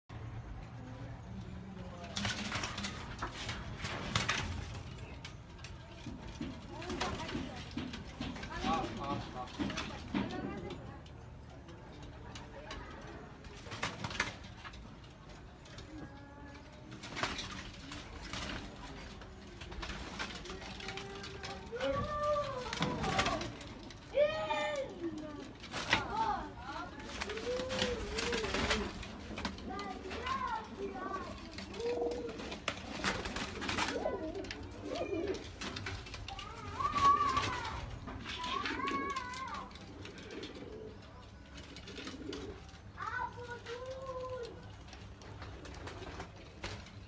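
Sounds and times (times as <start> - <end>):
pigeons cooing: 27.0 - 36.2, 37.0 - 43.0.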